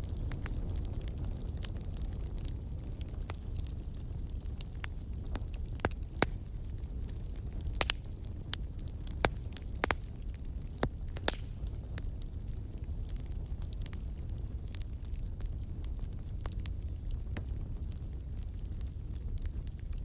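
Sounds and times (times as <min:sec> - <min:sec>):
low rumble of flames: 0:00.0 - 0:20.0
wood fire crackling: 0:00.0 - 0:20.0.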